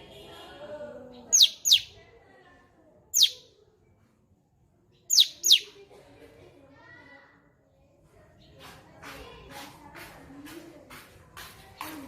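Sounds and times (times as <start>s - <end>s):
songbird calling: 1.2s - 2.0s, 3.2s - 3.4s, 5.1s - 5.8s.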